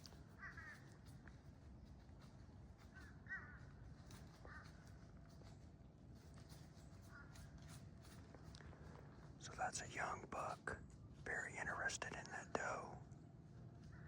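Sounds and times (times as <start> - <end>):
crow cawing faintly: 0.1 - 1.4, 2.8 - 5.4, 7.0 - 7.8.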